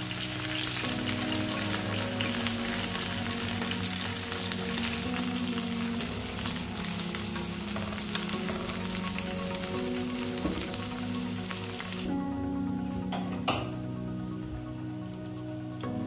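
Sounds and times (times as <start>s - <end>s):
potatoes sizzling in hot oil: 0.0s - 12.1s.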